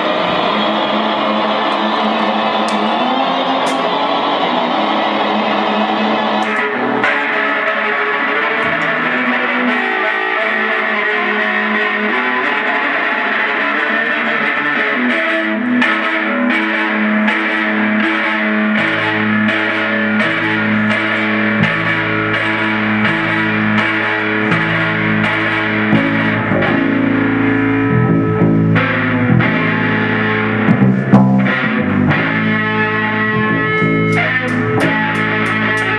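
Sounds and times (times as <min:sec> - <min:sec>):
distorted electric guitar solo: 0:00.0 - 0:35.9
low repeating bass line: 0:21.6 - 0:35.9.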